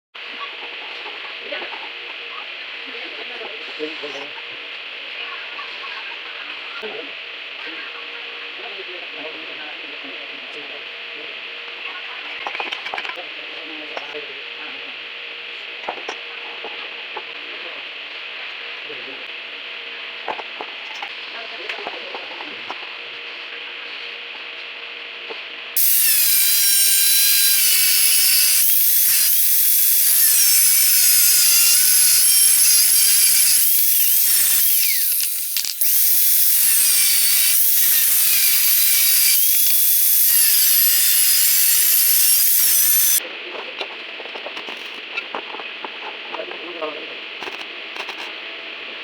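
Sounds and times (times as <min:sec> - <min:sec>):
power tool whining: 0:25.8 - 0:43.2.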